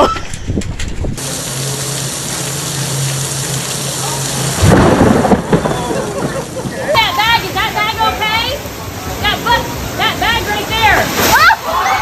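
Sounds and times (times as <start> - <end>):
heavy rain hissing: 1.2 - 12.0
loud thunder rumble: 4.4 - 7.7.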